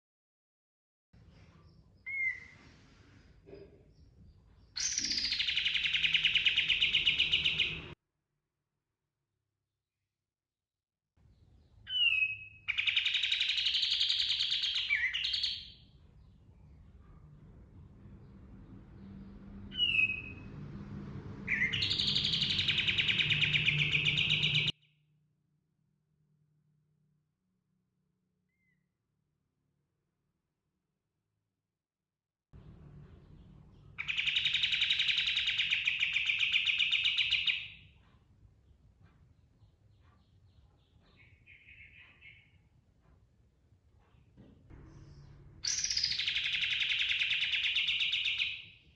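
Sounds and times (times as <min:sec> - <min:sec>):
bird whistling and trilling: 0:02.1 - 0:02.6, 0:04.8 - 0:07.9, 0:11.9 - 0:15.8, 0:19.7 - 0:20.4, 0:21.5 - 0:24.7, 0:34.0 - 0:37.8, 0:45.6 - 0:48.8
faint low hum: 0:15.8 - 0:24.7, 0:32.6 - 0:34.1, 0:37.9 - 0:46.3.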